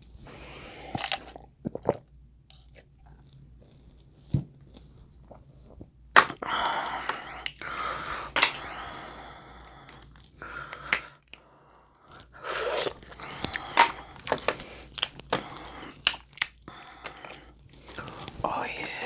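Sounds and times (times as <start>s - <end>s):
chewing and mouth noises: 0.9s - 5.9s
shell crunches and cracks: 10.0s - 11.5s, 12.9s - 18.4s.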